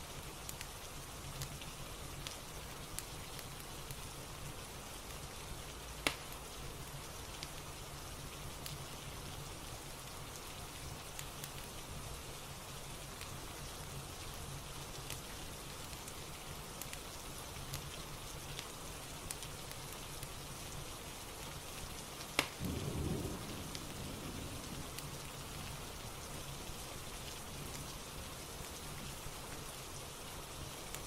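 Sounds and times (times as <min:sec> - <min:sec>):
fireplace crackles: 0:00.0 - 0:31.0
steady rain falling: 0:00.0 - 0:31.0
sharp crack: 0:06.0 - 0:06.3, 0:22.4 - 0:22.8.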